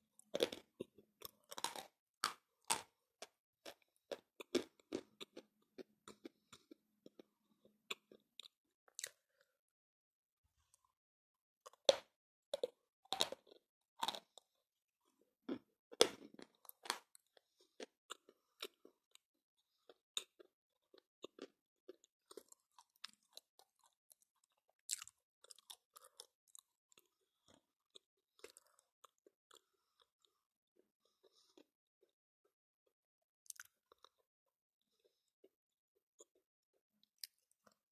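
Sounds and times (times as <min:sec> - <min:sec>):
chalk crunching being chewed: 0:15.9 - 0:32.1, 0:33.4 - 0:34.3.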